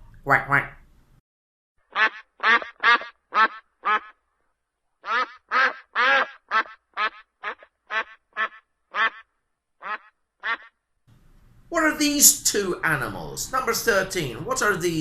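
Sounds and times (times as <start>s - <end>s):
duck quacking: 1.8s - 4.2s, 5.0s - 10.8s.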